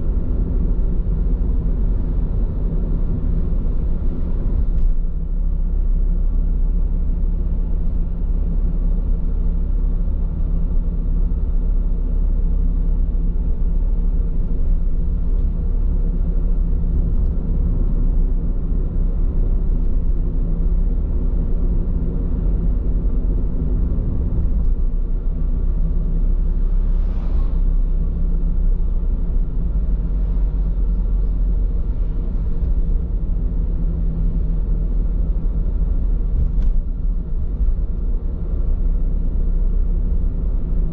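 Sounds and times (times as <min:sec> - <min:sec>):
road and tyre rumble: 0:00.0 - 0:40.9
short rushing noise: 0:26.6 - 0:28.2.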